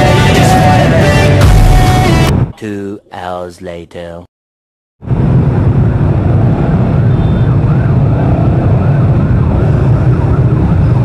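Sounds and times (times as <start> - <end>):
traffic: 5.1 - 11.0
faint yelping siren: 6.9 - 11.0.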